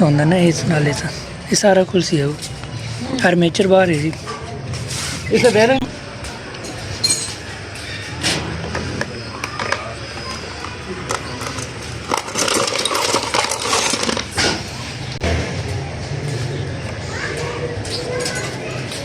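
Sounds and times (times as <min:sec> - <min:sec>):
metal tools clinking and scraping: 0:06.6 - 0:08.2, 0:09.5 - 0:14.7, 0:17.9 - 0:18.6.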